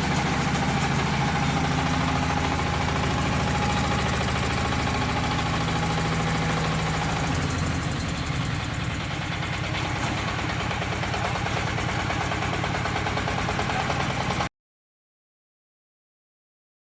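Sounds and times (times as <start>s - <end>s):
tractor engine running: 0.0s - 14.5s.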